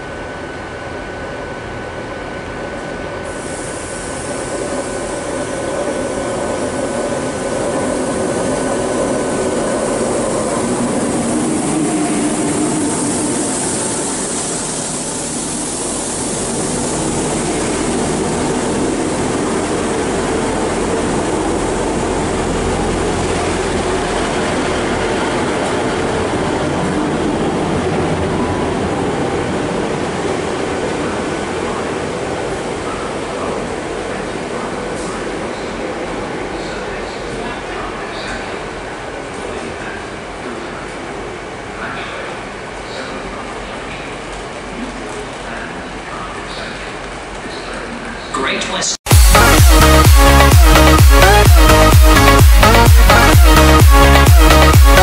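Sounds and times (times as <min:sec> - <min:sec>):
thin steady whine: 0:00.0 - 0:41.2
trains moving through station: 0:00.0 - 0:55.0.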